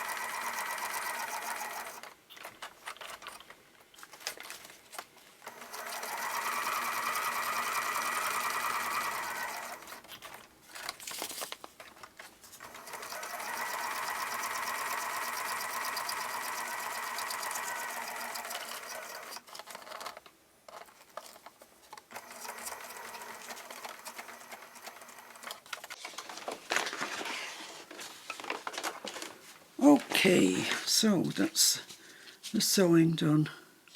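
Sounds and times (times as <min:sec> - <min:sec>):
sewing machine stitching: 0:00.0 - 0:03.2, 0:05.4 - 0:10.4, 0:12.6 - 0:20.1, 0:22.1 - 0:26.0.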